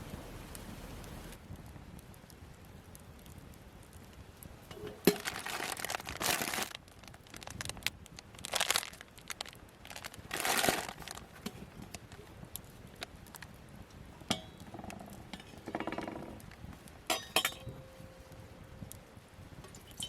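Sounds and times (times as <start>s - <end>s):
crinkling and rustling: 3.2s - 19.0s.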